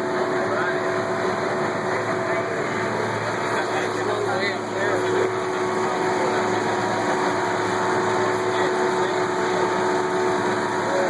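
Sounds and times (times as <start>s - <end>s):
boat motor droning: 0.0s - 11.0s.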